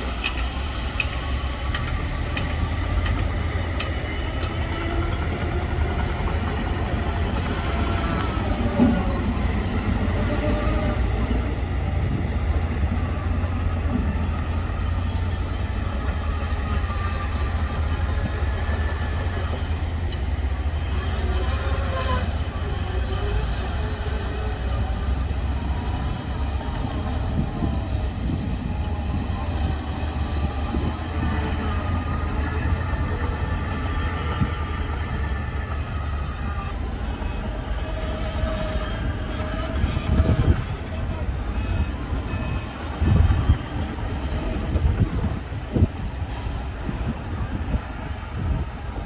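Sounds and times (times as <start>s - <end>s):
heavy diesel engine drone: 0.0s - 49.0s
metallic clanks and squeals: 0.1s - 5.2s.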